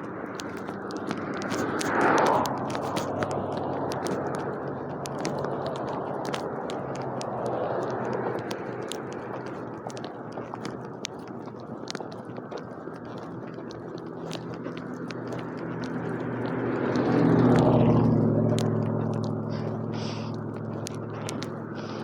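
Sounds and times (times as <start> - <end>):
small sharp clicks: 0.0 - 22.0
vehicle engine passing by: 1.0 - 6.1, 14.8 - 22.0.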